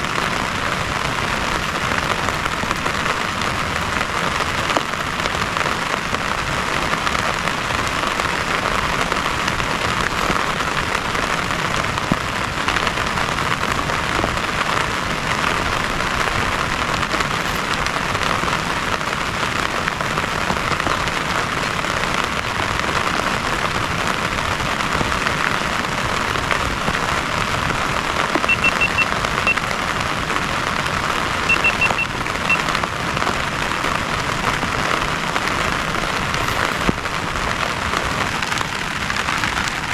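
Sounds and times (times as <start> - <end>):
heavy rain: 0.0 - 39.9
quick high chirps: 28.5 - 29.0, 31.5 - 32.6.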